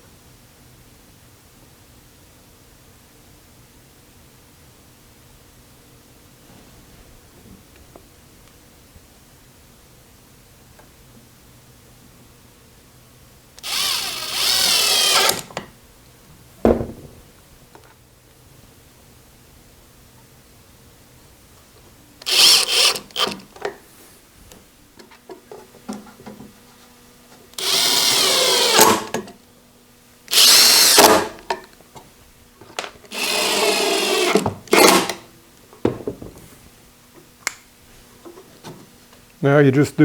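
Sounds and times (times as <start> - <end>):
power drill driving screws into wood: 13.6 - 15.6, 22.2 - 23.6, 27.6 - 29.2, 30.3 - 31.5, 33.1 - 35.3.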